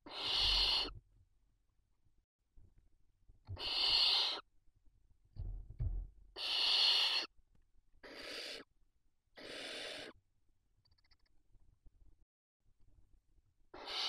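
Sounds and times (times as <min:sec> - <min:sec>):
owls giving rasping hiss calls: 0:00.0 - 0:00.9, 0:03.6 - 0:04.5, 0:06.4 - 0:07.3, 0:08.0 - 0:08.7, 0:09.4 - 0:10.2, 0:13.8 - 0:14.0
soft knocks or scrapes: 0:05.4 - 0:06.2.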